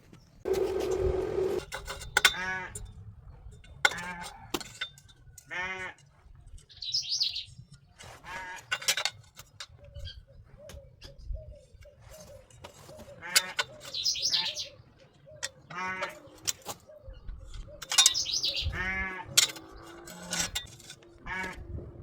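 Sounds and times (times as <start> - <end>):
bird chirping: 9.8 - 18.8
farm animals calling: 12.2 - 17.1, 17.7 - 21.8.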